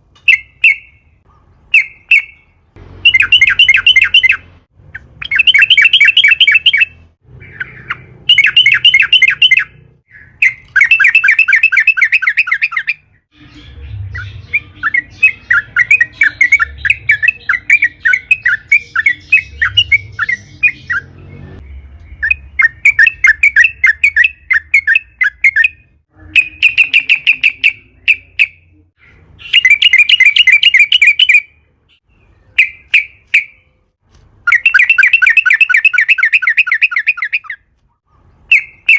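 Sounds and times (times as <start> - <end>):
bird chattering song: 0.2 - 33.8, 34.5 - 37.7.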